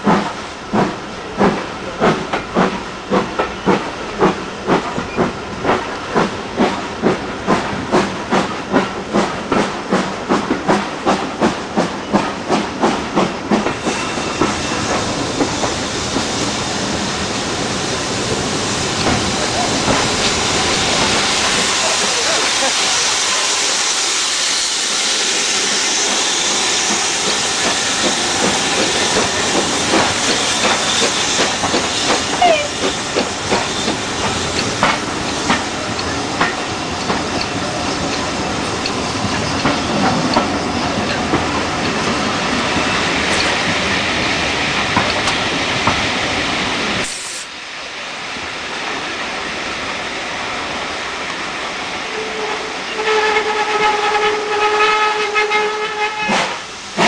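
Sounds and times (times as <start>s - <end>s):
passing train rush and hiss: 0.0s - 57.0s
steam locomotive whistle: 21.2s - 34.1s, 52.0s - 56.7s
wheels clicking over rail joints: 26.8s - 43.9s.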